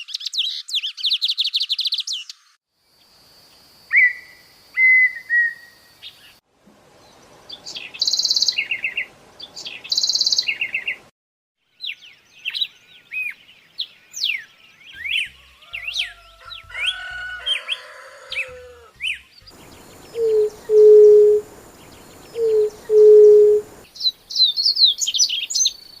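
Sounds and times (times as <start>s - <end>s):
birds chirping: 5.4s - 11.1s, 11.8s - 26.0s
birds whistling: 7.5s - 11.0s, 11.8s - 26.0s
buzzy bird trills: 19.0s - 23.8s
low hooting notes: 19.5s - 23.8s.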